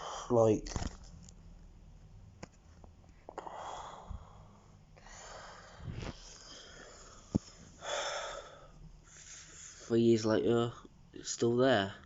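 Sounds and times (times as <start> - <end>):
person breathing out: 3.4 - 9.8.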